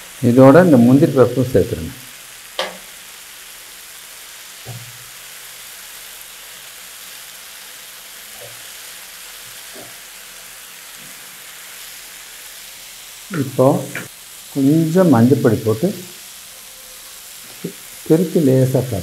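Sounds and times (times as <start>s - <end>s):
food sizzling in butter: 0.0s - 19.0s
spatula knocking in a pan: 2.6s - 2.9s.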